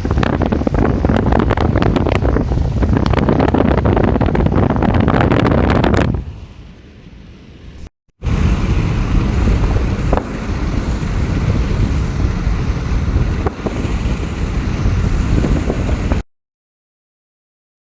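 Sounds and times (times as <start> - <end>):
strong wind buffeting microphone: 0.0 - 16.2.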